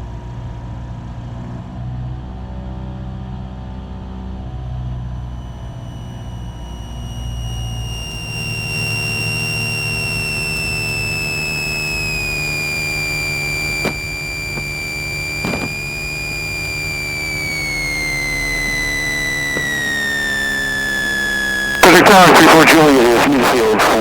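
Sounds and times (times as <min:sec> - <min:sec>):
piston aircraft engine hum: 0:04.4 - 0:24.0
thin high whine: 0:04.4 - 0:24.0
faint clicks: 0:06.1 - 0:21.8.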